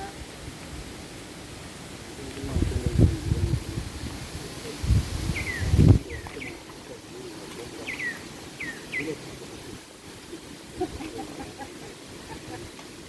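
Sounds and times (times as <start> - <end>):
outdoor background noise: 0.0 - 13.0
bird chirping: 5.3 - 6.8, 7.7 - 9.2.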